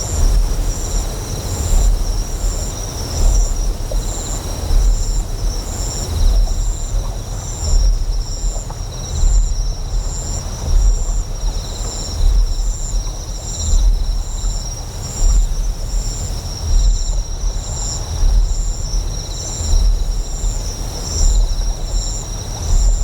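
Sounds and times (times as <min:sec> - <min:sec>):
deep generator hum pulsing: 0:00.0 - 0:23.0
flowing water: 0:00.0 - 0:23.0
insects chirping: 0:00.0 - 0:23.0.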